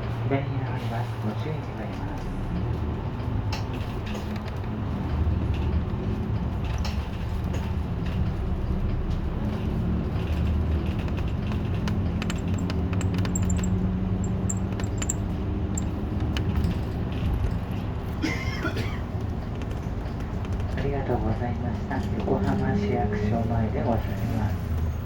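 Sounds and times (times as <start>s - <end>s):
bus engine and road hum: 0.0s - 25.0s
cabin fittings rattling: 10.7s - 16.8s.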